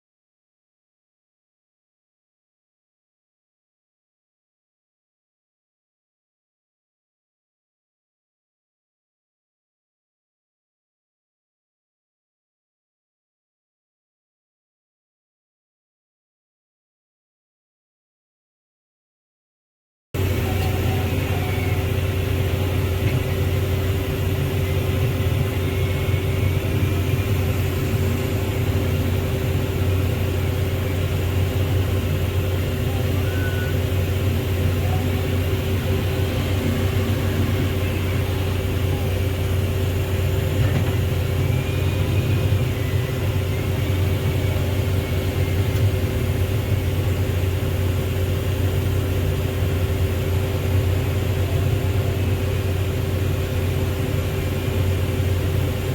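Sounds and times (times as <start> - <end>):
heavy diesel engine running: 20.2 - 55.9.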